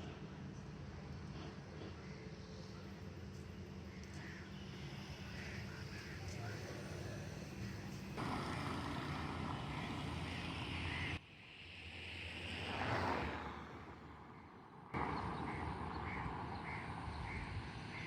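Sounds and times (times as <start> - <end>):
vehicle passing: 12.3 - 18.0.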